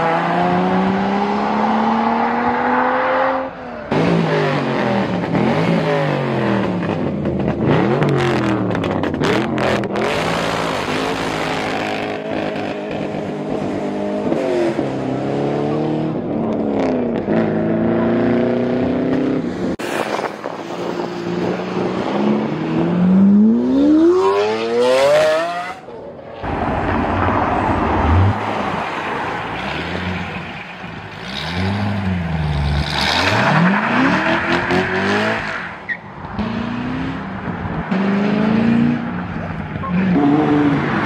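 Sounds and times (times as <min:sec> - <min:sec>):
car engines accelerating hard: 0:00.0 - 0:41.0.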